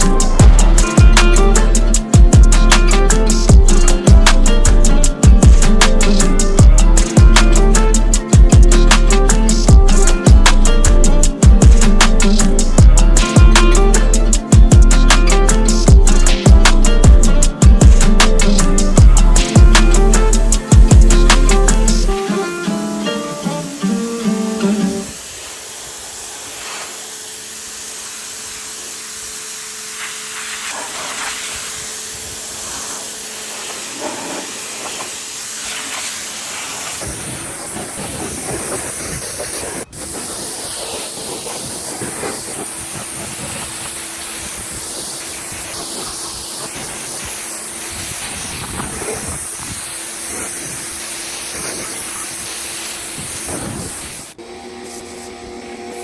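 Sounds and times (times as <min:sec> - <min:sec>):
pressure washer spray hissing: 0:00.0 - 0:55.6.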